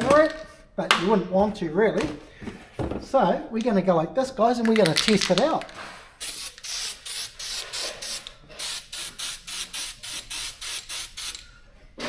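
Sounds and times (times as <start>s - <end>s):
aerosol can spraying: 4.8s - 11.4s.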